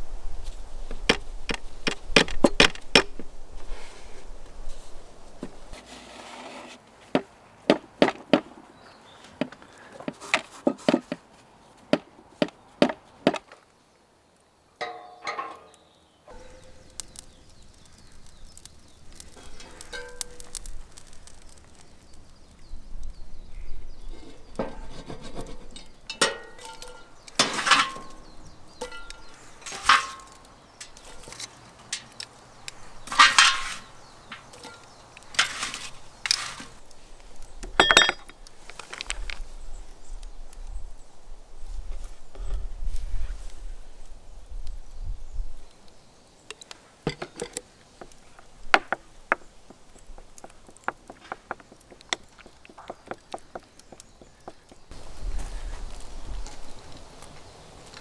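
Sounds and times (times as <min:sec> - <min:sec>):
chopping wood knocks: 0:01.1 - 0:03.2
ringing clinks: 0:37.8 - 0:38.3.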